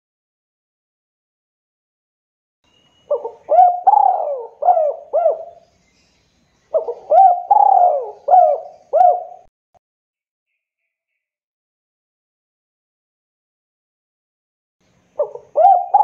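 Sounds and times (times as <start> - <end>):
dove cooing: 3.1 - 5.6, 6.7 - 9.5, 15.2 - 16.0.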